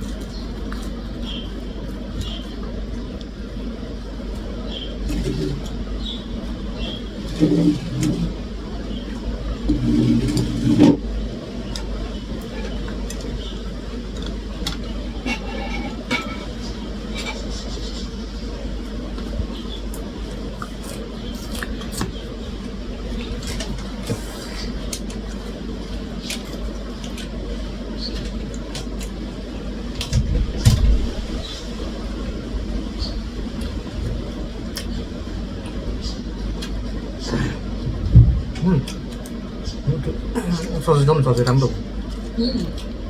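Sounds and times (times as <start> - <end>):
steady low hum: 0.0 - 43.0
low rumble: 30.2 - 40.4
voice: 37.2 - 42.8
low bump: 37.7 - 38.8.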